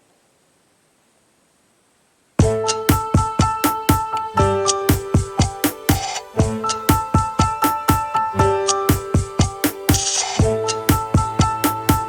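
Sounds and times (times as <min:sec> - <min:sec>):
held keyboard notes: 0:02.4 - 0:12.0
steady drum beat: 0:02.4 - 0:12.0
hiss-like wash: 0:09.6 - 0:10.8.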